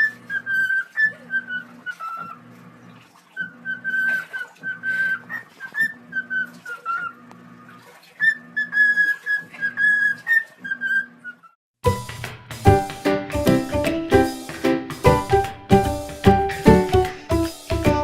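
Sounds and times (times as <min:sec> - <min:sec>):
parrot whistling a tune: 0:00.0 - 0:02.3, 0:03.4 - 0:07.2, 0:08.2 - 0:11.4.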